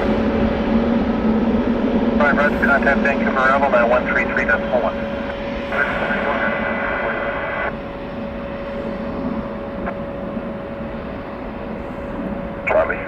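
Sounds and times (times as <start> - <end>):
airliner engine noise: 0.0 - 13.0
radio hiss: 2.2 - 7.8, 12.6 - 13.0.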